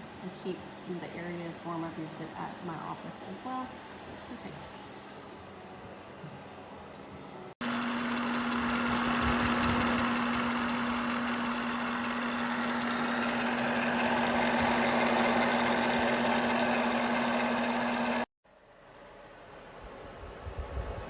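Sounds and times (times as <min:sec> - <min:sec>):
heater fan running: 0:00.0 - 0:21.0.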